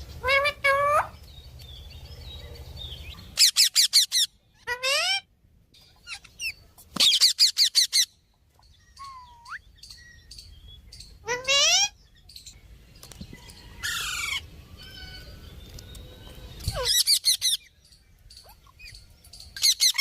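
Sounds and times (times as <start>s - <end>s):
parakeet squawking and chirping: 0.2s - 1.2s, 3.1s - 5.3s, 5.9s - 8.2s, 11.0s - 12.0s, 16.6s - 17.7s, 19.6s - 20.0s.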